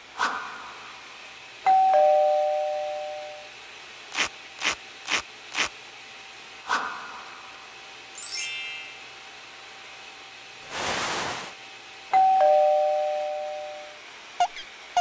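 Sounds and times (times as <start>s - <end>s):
paintbrush swishes: 10.7s - 11.6s.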